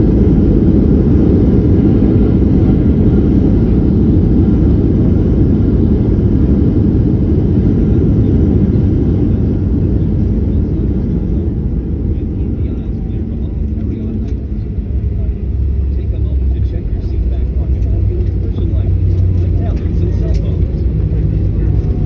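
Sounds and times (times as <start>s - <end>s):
airplane engines and airflow rumble: 0.0s - 22.0s.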